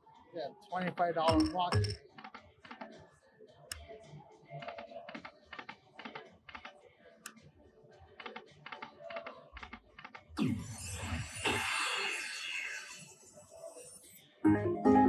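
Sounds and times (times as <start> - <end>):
slot machine electronic ticks: 0.8 - 2.1
slot machine music: 1.3 - 2.0, 14.5 - 15.0.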